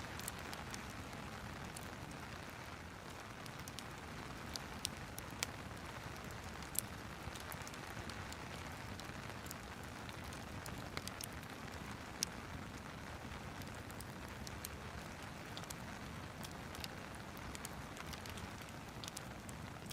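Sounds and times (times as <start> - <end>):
steady rain: 0.0 - 19.9
fireplace crackling: 0.1 - 19.9.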